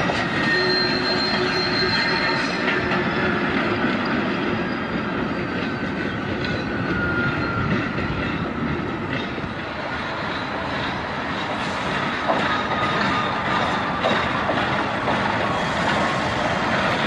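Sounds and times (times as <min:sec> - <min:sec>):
diesel locomotive engine rumble: 0:00.0 - 0:17.0
faint thin squeal: 0:00.4 - 0:02.7.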